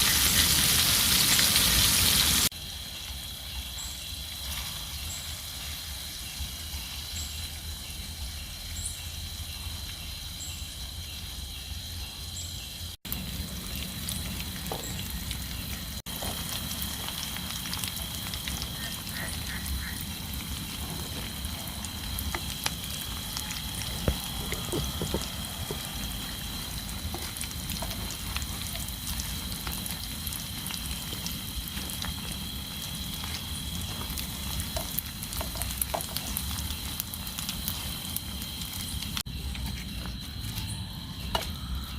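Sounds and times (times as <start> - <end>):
heavy rain falling: 0.0 - 2.5, 13.1 - 38.6.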